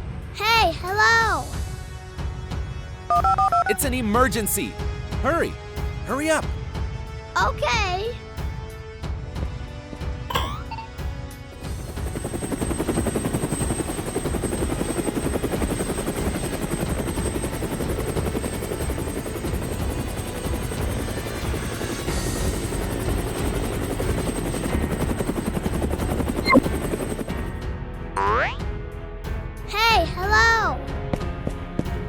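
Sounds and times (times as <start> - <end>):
helicopter rotor beating: 11.6 - 27.5.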